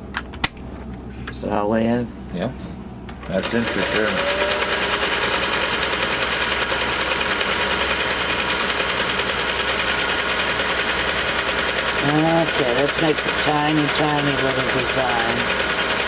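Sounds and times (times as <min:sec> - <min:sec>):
sewing machine running: 0:03.2 - 0:16.0.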